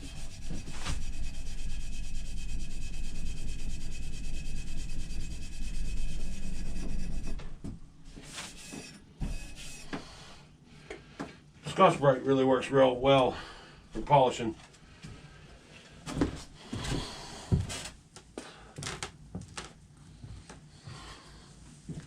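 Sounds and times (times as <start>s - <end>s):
abrasive pad scrubbing metal: 0.0s - 7.6s, 8.2s - 10.0s.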